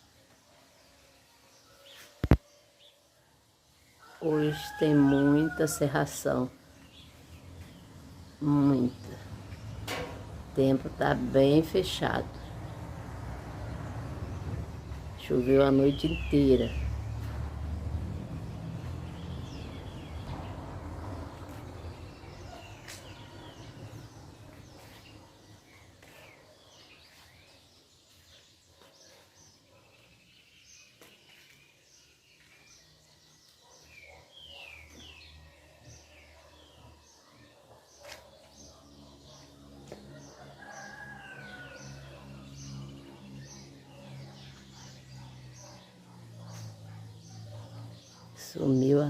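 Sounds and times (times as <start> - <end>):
birds chirping: 0.0 - 49.0
distant rooster crowing: 4.0 - 6.3, 22.0 - 24.2, 40.1 - 43.0.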